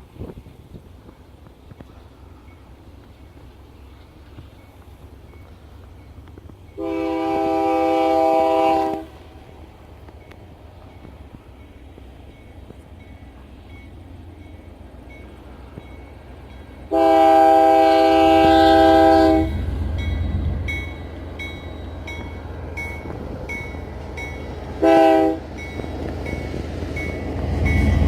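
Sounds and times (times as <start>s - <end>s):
low rumble of train: 0.0s - 28.0s
locomotive air horn blasts: 6.8s - 9.1s, 16.9s - 19.6s, 24.8s - 25.5s
crossing bell dinging: 10.1s - 17.3s, 17.9s - 28.0s.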